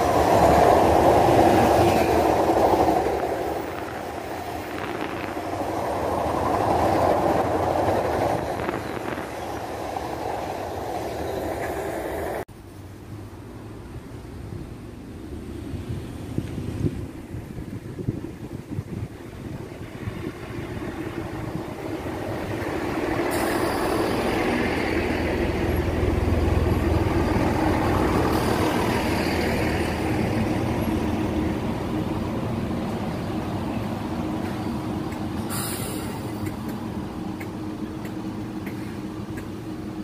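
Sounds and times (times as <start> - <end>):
diesel train engines and wheels: 0.0 - 40.0
high air hisses: 22.1 - 25.2, 28.1 - 30.2, 35.4 - 36.9.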